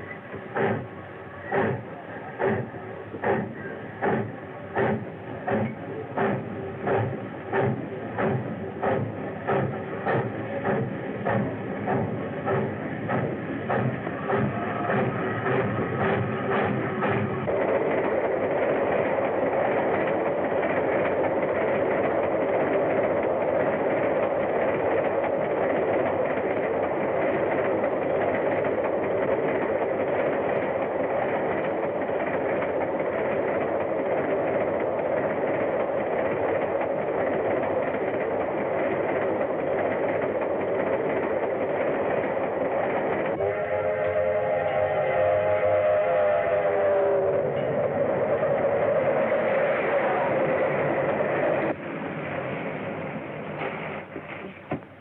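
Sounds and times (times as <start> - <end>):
train rolling on rails: 0.0 - 55.0
steam locomotive whistle: 43.3 - 50.9.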